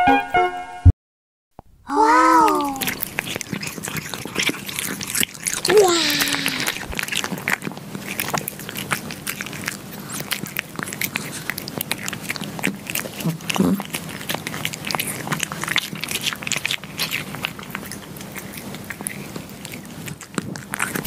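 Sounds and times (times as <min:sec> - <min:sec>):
cats licking glass: 0:02.4 - 0:21.0
cat mew: 0:05.7 - 0:06.9.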